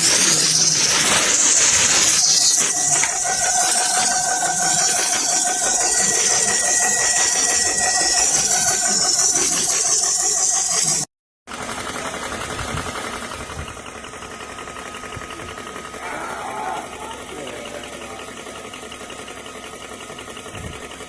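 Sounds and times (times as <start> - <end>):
air compressor motor whine: 0.0 - 11.0.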